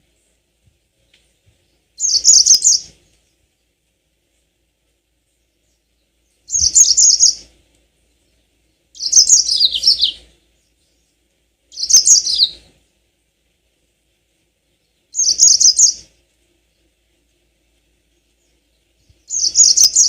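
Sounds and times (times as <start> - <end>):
canary singing trilled notes: 2.0 - 2.9, 6.5 - 7.4, 9.0 - 10.3, 11.7 - 12.6, 15.2 - 16.1, 19.3 - 20.0.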